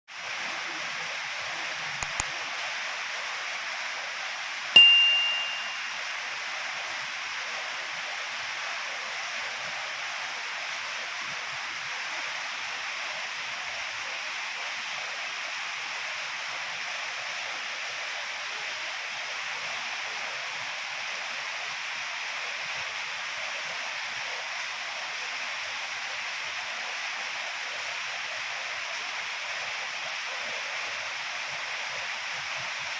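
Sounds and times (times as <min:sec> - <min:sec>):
sharp metallic ding: 0:04.8 - 0:06.0.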